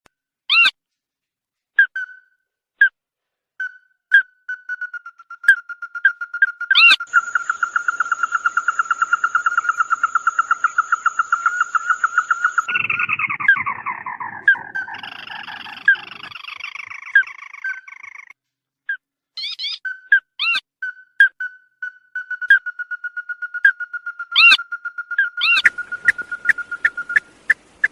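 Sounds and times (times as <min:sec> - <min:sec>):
bird calls: 0:03.6 - 0:18.4, 0:21.2 - 0:27.9
chattering bird trill: 0:04.5 - 0:18.3, 0:19.4 - 0:20.6, 0:21.2 - 0:27.2.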